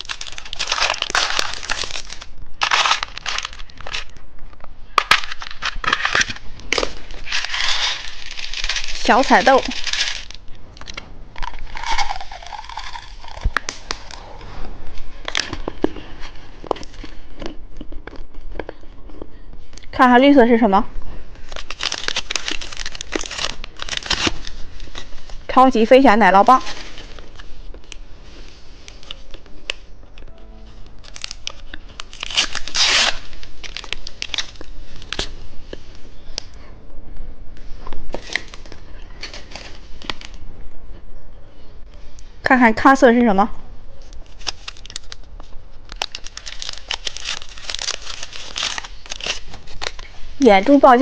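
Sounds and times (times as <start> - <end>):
plastic packaging crinkling: 0.0 - 14.2, 21.4 - 29.8, 30.9 - 35.4, 44.0 - 51.0
wrapper tearing: 0.0 - 14.2, 21.4 - 25.4, 31.0 - 35.4, 44.1 - 51.0.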